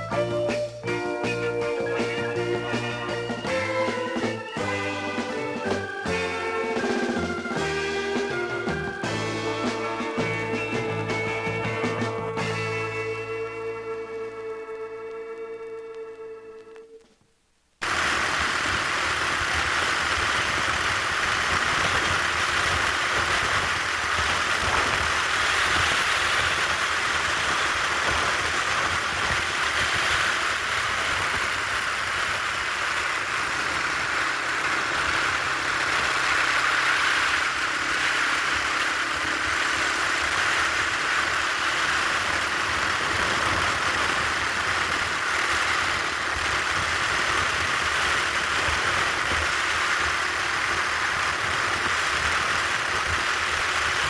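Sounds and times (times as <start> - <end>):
rushing noise: 0.0 - 16.8, 17.8 - 54.0
motorcycle engine running: 0.0 - 16.9, 17.8 - 54.0.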